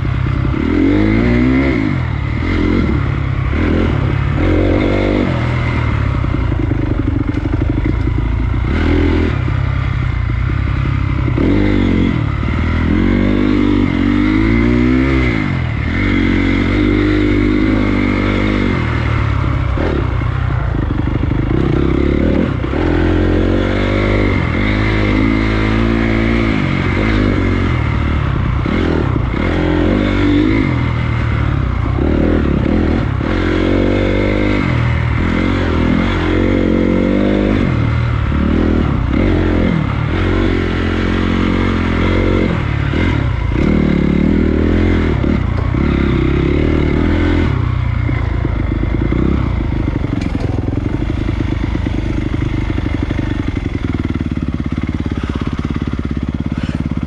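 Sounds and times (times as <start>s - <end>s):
dirt bike engine revving: 0.0s - 57.0s
steady rushing noise: 0.0s - 57.0s.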